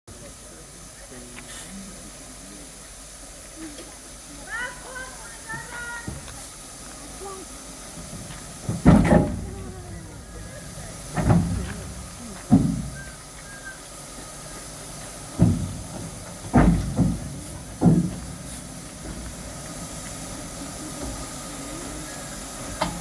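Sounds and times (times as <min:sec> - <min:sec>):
steam hissing: 0:00.1 - 0:23.0
low thumps: 0:15.2 - 0:20.3.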